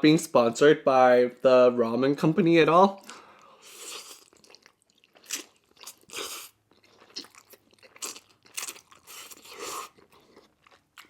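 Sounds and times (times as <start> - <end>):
person chewing and biting: 3.0 - 11.0.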